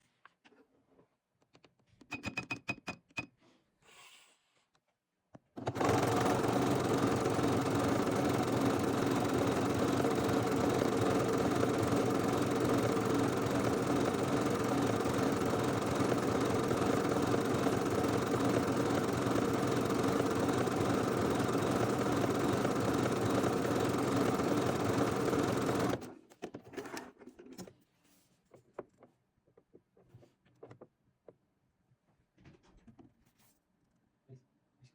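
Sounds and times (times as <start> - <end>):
sewing machine stitching: 5.6 - 26.2.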